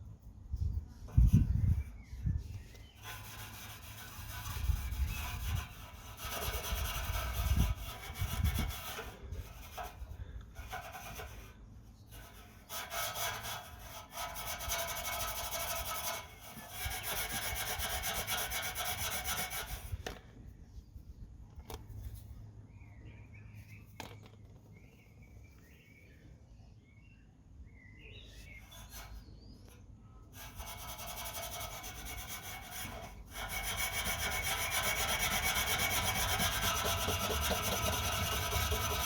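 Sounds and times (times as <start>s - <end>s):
wire wool scrubbing metal: 3.0s - 10.0s, 12.2s - 19.8s, 30.4s - 39.0s.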